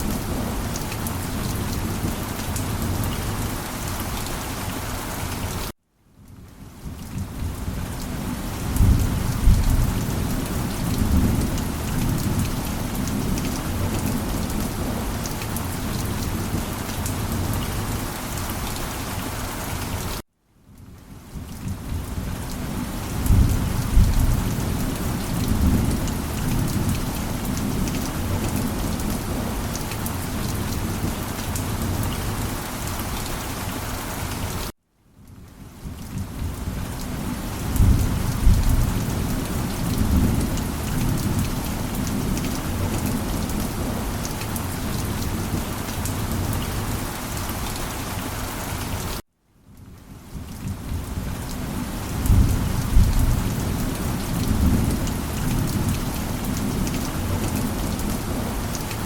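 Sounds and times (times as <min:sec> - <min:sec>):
heavy rain: 0:00.0 - 0:59.0
thunder rumbling: 0:23.2 - 0:29.7, 0:37.6 - 0:44.7, 0:52.2 - 0:58.6.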